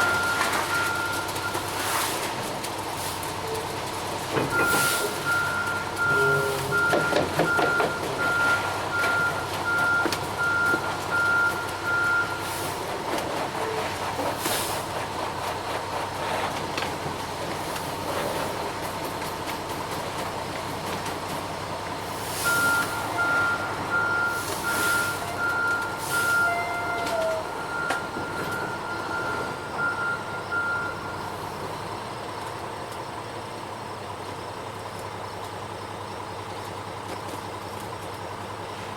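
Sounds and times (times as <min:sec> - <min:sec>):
truck backup alarm beeping: 0:00.0 - 0:02.2, 0:04.4 - 0:13.1, 0:21.8 - 0:38.7
diesel engine running: 0:00.0 - 0:38.9.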